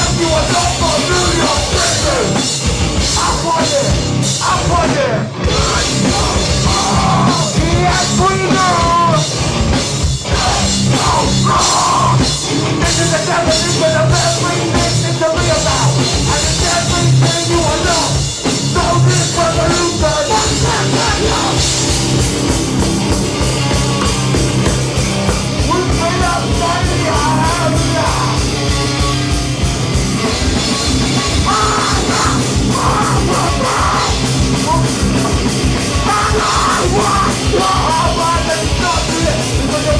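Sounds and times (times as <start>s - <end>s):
punk band playing live: 0.0s - 39.9s
shouted vocals: 3.2s - 9.2s, 10.3s - 18.1s, 18.8s - 21.9s, 25.6s - 28.5s, 31.2s - 35.1s, 36.0s - 39.9s.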